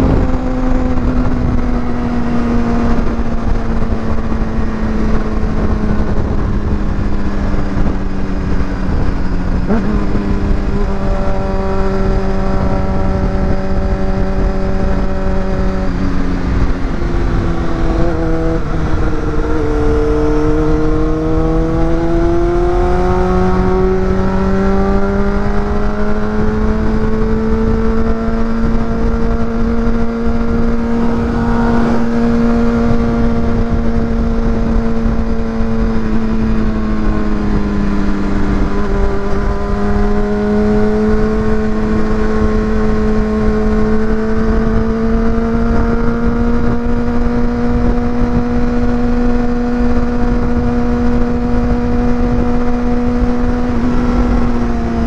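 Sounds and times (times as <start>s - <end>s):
motorcycle engine: 0.0s - 55.0s
low rushing noise: 25.9s - 43.2s.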